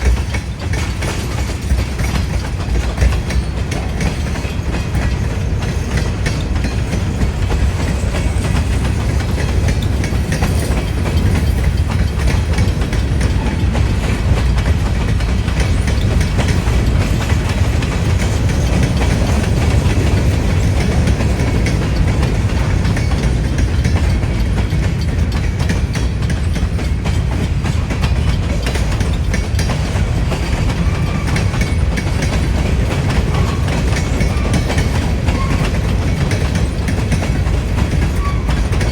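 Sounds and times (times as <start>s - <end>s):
train wheels clacking over rail joints: 0.0s - 38.9s
wind buffeting microphone: 0.0s - 38.9s.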